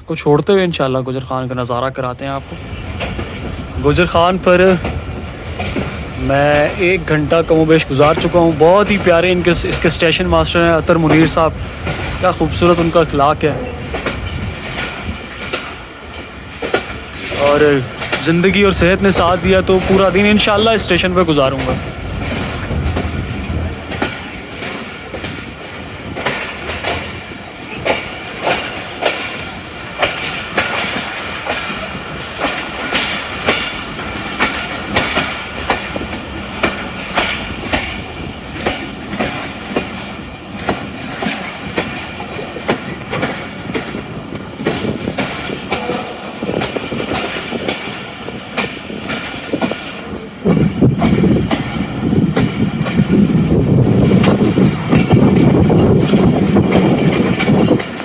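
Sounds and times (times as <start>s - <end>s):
train wheels clicking over rail joints: 0.1s - 58.0s.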